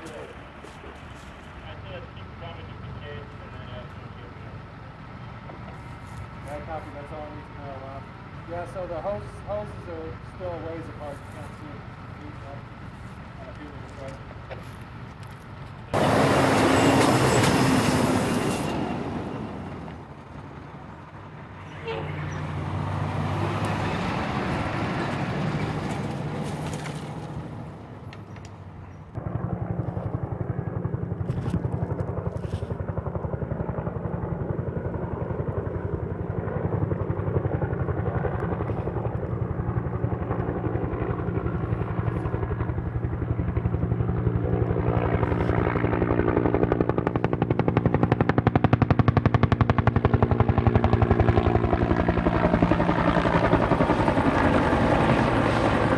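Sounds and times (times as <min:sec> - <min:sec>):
rushing engine noise: 0:00.0 - 0:28.3
helicopter rotor chopping: 0:00.0 - 0:55.9.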